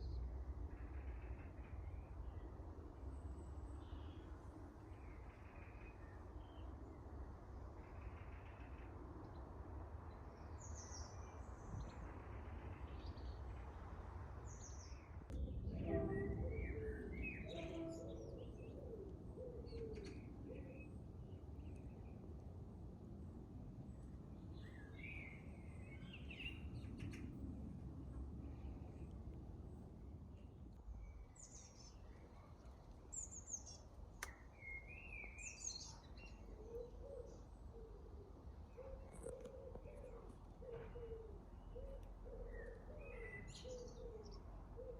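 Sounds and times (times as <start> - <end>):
low background rumble: 14.6 - 33.4
low cooing call: 15.5 - 20.8.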